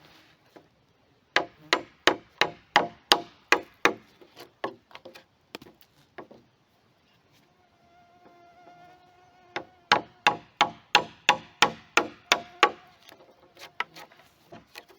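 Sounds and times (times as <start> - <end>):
hammer striking wood: 1.4 - 4.0, 9.6 - 12.8.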